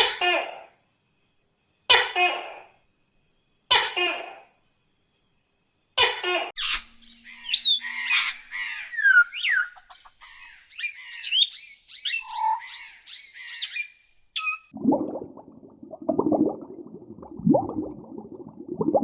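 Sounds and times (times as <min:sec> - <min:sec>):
birds chirping and squawking: 0:06.6 - 0:14.6.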